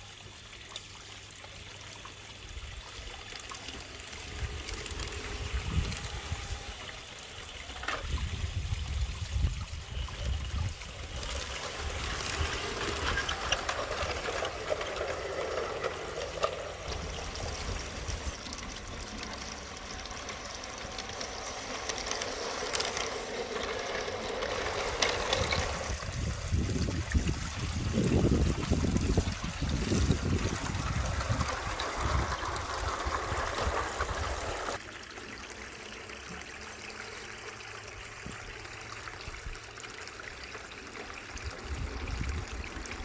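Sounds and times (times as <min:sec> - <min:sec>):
model train whirring rattle: 0:02.0 - 0:34.8.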